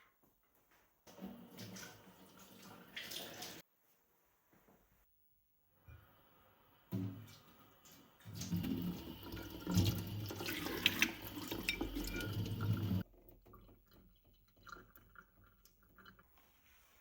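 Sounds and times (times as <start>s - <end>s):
tap water running into sink: 8.2s - 15.8s.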